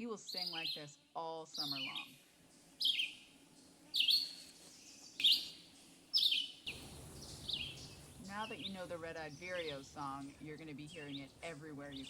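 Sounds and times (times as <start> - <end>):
bird singing short phrases: 0.2 - 2.2, 2.8 - 3.2, 4.0 - 4.4, 5.0 - 5.6, 6.2 - 12.0.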